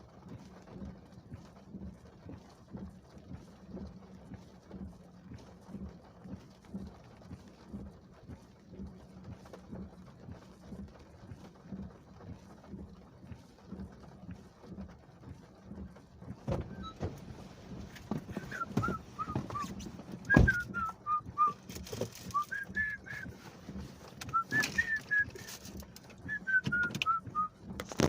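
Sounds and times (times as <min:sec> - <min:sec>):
knocks and thumps: 0:16.3 - 0:28.0
person whistling a tune: 0:18.3 - 0:19.7, 0:20.3 - 0:21.6, 0:22.3 - 0:23.3, 0:24.3 - 0:27.5.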